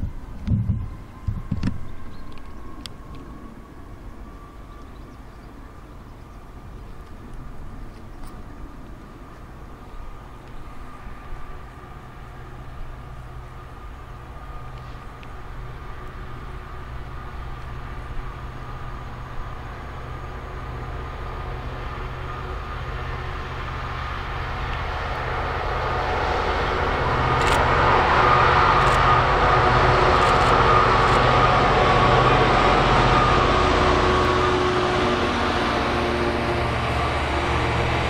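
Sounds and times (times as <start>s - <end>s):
train rumble and wheel noise: 0.0s - 38.0s
sharp clicks: 27.4s - 27.7s, 30.1s - 31.2s.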